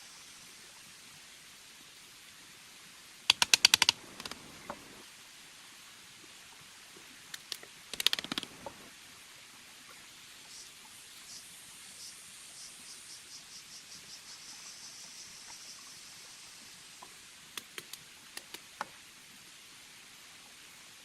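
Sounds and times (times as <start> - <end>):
insect chirping trill: 3.3 - 5.0, 10.5 - 17.0
sharp clicks or knocks: 3.3 - 5.0, 7.3 - 8.9.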